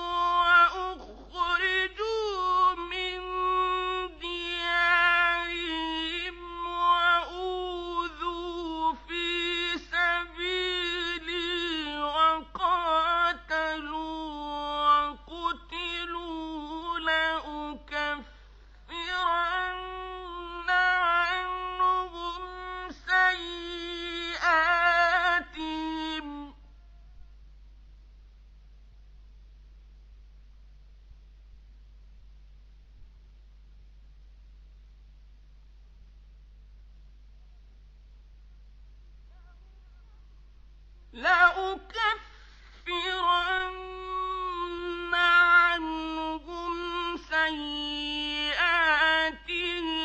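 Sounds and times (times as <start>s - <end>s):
man chanting recitation: 0.0s - 18.3s, 18.9s - 27.2s, 39.3s - 40.4s, 41.1s - 50.0s.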